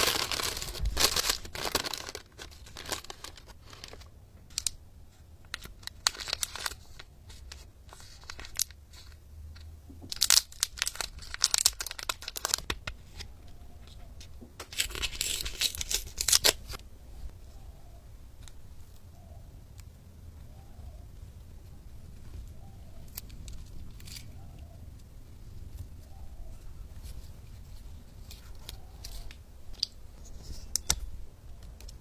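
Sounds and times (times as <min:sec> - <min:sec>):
packaging tearing and crinkling: 0:00.0 - 0:04.8, 0:05.4 - 0:09.2, 0:10.1 - 0:13.3, 0:14.6 - 0:16.8.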